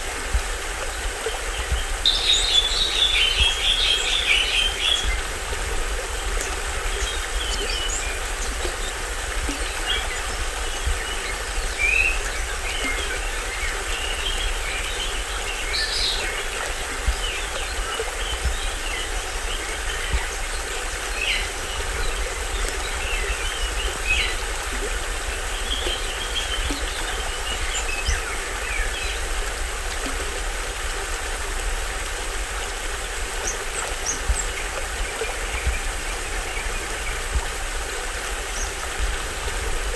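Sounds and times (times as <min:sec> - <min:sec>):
waterfall and stream rushing: 0:00.0 - 0:39.9
birds chirping and calling: 0:01.6 - 0:05.3.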